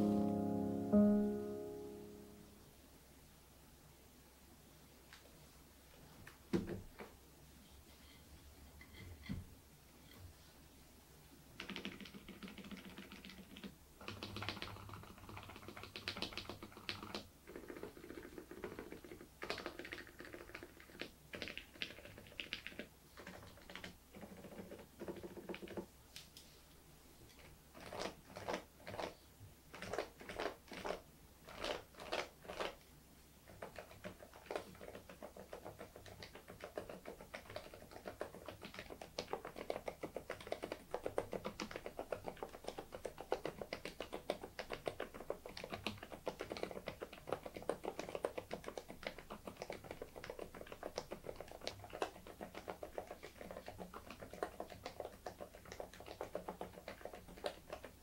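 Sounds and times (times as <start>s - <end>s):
keyboard typing: 11.6s - 25.8s, 29.7s - 32.8s, 33.5s - 58.0s.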